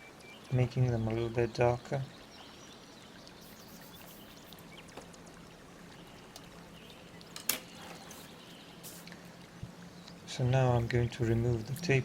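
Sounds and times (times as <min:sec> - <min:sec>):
small ticks: 0:02.9 - 0:07.7.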